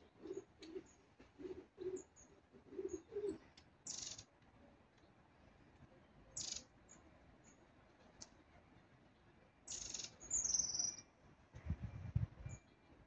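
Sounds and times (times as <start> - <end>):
low cooing call: 0.0 - 3.4
thin high bird calls: 1.8 - 4.3, 6.4 - 7.6, 9.7 - 11.1
buzzy rattling bird calls: 3.9 - 4.2, 6.4 - 6.6, 9.7 - 10.9.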